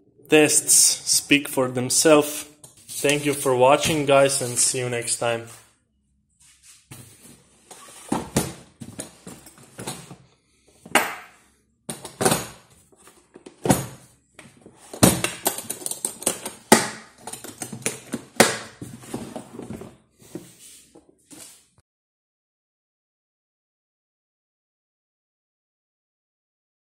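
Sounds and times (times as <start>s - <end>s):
hard objects clattering: 10.8s - 20.0s.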